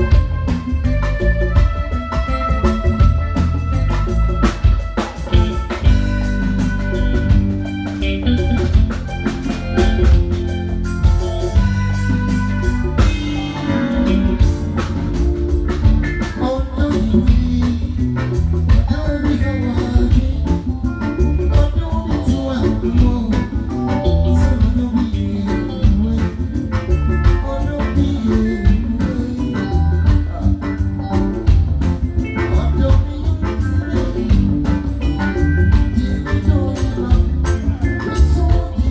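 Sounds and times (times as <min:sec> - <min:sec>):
live band playing: 0:00.0 - 0:38.9
person singing: 0:16.2 - 0:30.7, 0:32.3 - 0:38.9.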